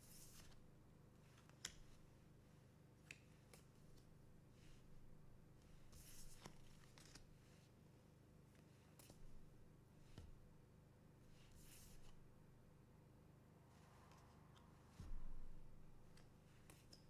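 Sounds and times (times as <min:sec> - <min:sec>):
soft clicks of cards: 0:01.3 - 0:02.1, 0:03.0 - 0:04.1, 0:05.9 - 0:07.4, 0:08.5 - 0:10.4, 0:16.0 - 0:17.0.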